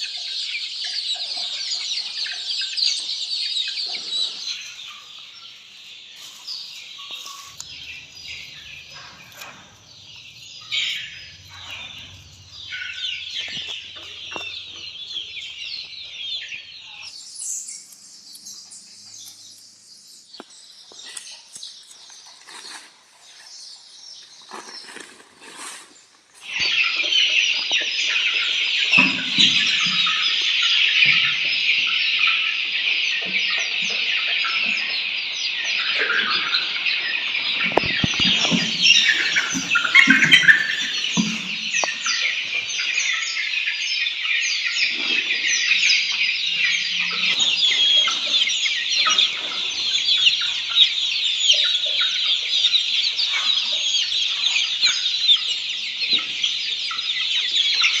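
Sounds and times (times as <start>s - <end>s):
chicks peeping: 0.0s - 58.0s
low clucking: 7.1s - 16.0s, 37.7s - 42.0s.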